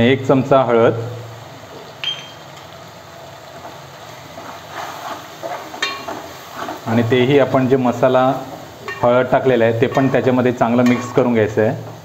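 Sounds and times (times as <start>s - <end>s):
onions sizzling in oil: 0.0s - 12.0s
metal spoon clinking against pot: 2.0s - 2.4s, 5.7s - 6.2s
spoon scraping and knocking pot: 5.0s - 6.8s.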